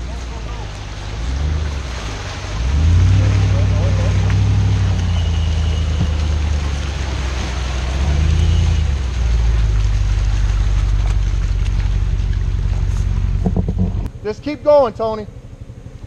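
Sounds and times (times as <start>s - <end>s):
off-road vehicle engine under load: 0.0s - 16.0s.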